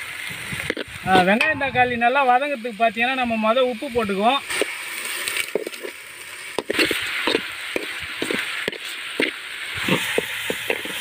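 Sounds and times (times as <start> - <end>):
vegetables sizzling in oil: 0.0 - 11.0
metal spoon scraping pan: 6.6 - 11.0.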